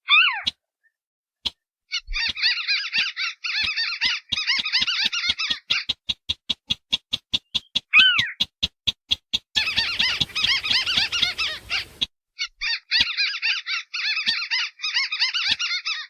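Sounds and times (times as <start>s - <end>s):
crakes calling: 9.6s - 12.1s.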